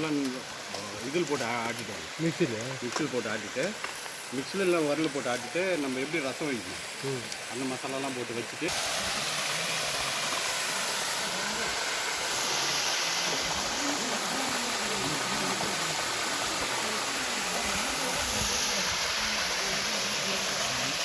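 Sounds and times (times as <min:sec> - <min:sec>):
steady rushing hiss: 0:00.0 - 0:21.0
faint voices: 0:04.4 - 0:21.0.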